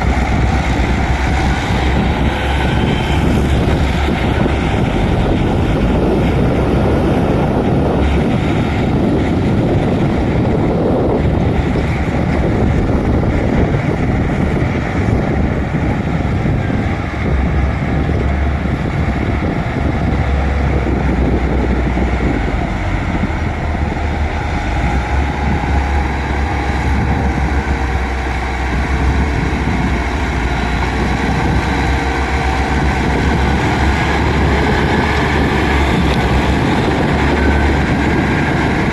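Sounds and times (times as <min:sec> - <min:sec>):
bulldozer diesel engine rumbling: 0:00.0 - 0:38.9.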